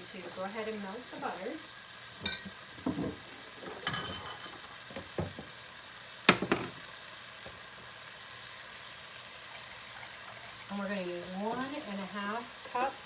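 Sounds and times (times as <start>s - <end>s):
butter sizzling in pan: 0.0s - 13.0s
utensil knocking against pan: 6.3s - 6.8s.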